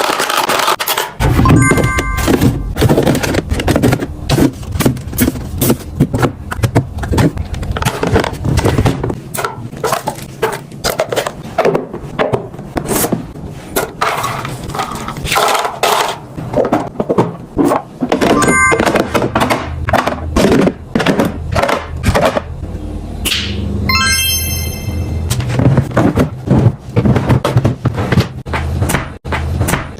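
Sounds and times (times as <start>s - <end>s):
packaged food and containers handled: 1.9s - 22.4s.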